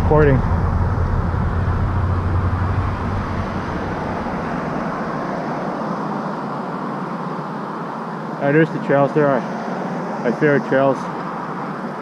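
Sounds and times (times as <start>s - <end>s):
wind on microphone: 0.0s - 5.9s
wind buffeting: 0.0s - 6.2s.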